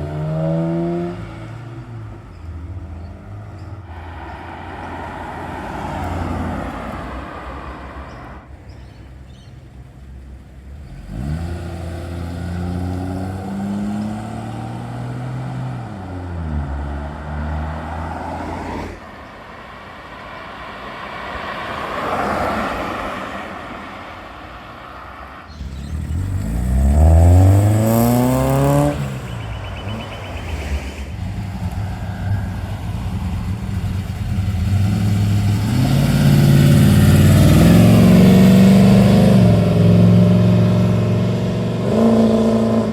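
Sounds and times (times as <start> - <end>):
cars accelerating away: 0.0 - 2.3, 10.8 - 19.0, 25.5 - 42.9.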